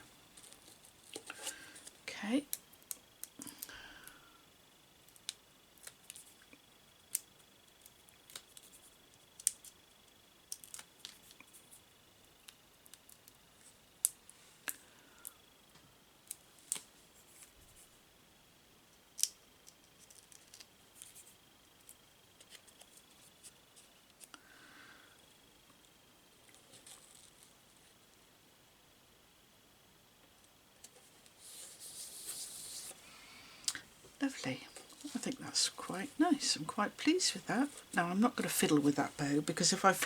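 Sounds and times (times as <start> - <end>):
faint high whine: 27.0 - 40.0.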